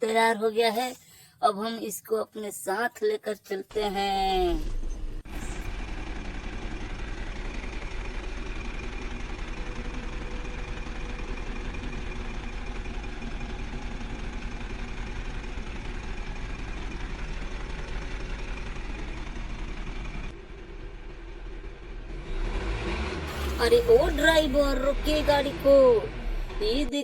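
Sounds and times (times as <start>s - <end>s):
vehicle engine rumbling: 3.7s - 27.0s.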